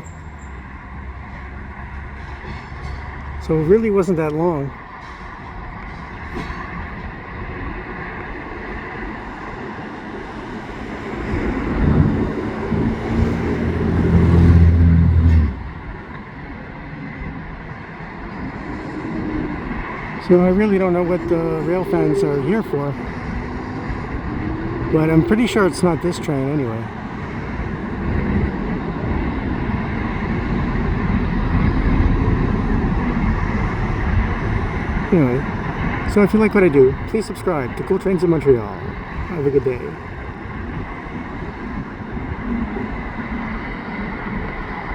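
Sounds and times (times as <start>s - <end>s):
rush of vehicle noise: 0.0s - 44.9s
train passing: 0.0s - 44.9s
heavy engine droning: 9.0s - 16.5s, 18.5s - 44.9s.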